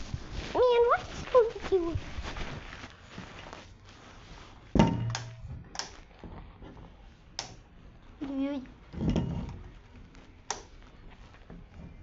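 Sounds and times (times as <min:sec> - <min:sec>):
loud thump: 0:04.8 - 0:05.2.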